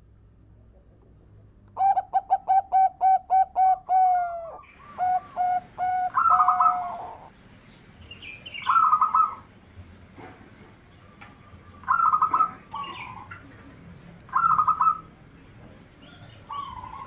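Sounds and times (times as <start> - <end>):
dove cooing: 1.8 - 7.4, 8.6 - 9.5, 11.3 - 13.5, 14.3 - 15.2, 16.0 - 17.0.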